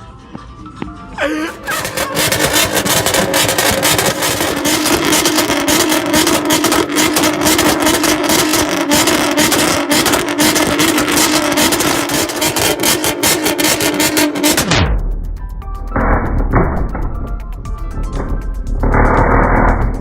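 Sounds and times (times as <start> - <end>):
exhaust crackling and popping: 1.2 - 20.0
car engine at high rev: 1.4 - 14.9, 18.7 - 20.0.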